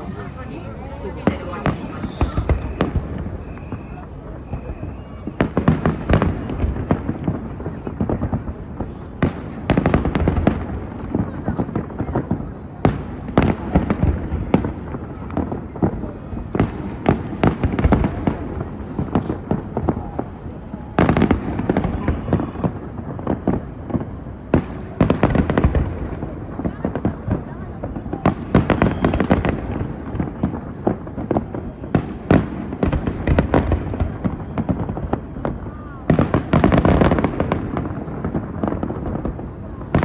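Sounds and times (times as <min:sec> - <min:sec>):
fireworks bangs and crackles: 0:00.0 - 0:40.0
loud fireworks reports: 0:00.0 - 0:40.0.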